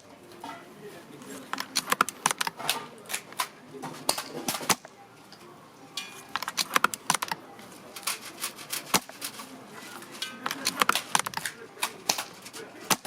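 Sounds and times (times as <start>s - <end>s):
airsoft rifle firing: 10.4s - 13.0s.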